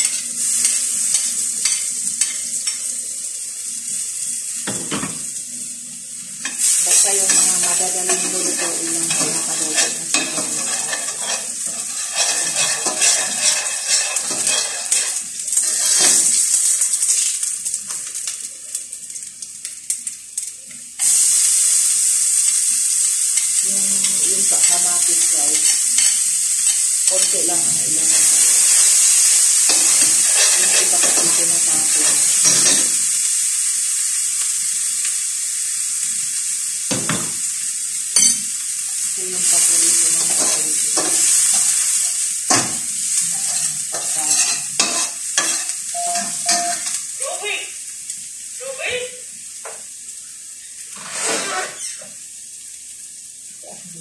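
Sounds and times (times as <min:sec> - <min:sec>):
hot oil sizzling in a frying pan: 0:00.0 - 0:54.0
metal spatula scraping a pan: 0:06.5 - 0:16.4, 0:29.7 - 0:33.0, 0:42.5 - 0:47.0, 0:50.9 - 0:51.9.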